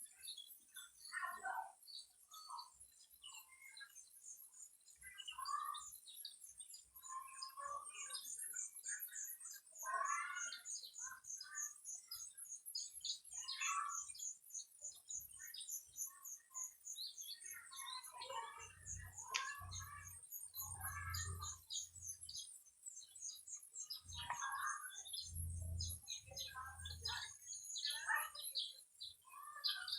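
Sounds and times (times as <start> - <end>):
birds chirping and calling: 0.0 - 29.9.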